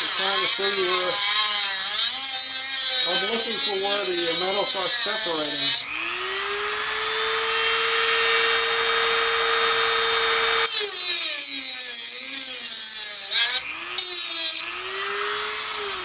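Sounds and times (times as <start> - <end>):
rotary tool cutting metal: 0.0 - 16.0.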